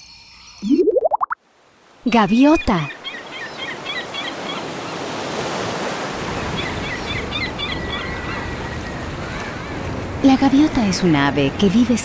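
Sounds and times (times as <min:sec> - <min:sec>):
gulls calling: 0:02.1 - 0:05.6, 0:06.2 - 0:11.6
ocean surf: 0:03.0 - 0:12.0.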